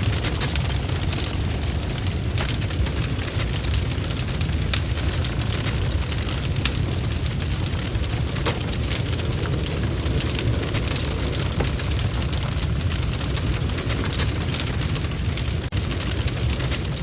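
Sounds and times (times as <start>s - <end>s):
low roar of flames: 0.0s - 17.0s
wood fire popping and snapping: 0.0s - 17.0s.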